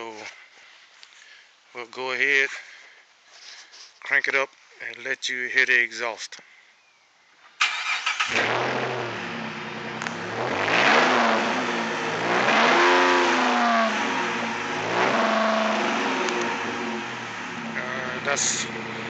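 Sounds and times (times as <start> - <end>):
car engine cranking and starting: 7.6 - 19.0
car engine idling and revving: 7.7 - 19.0.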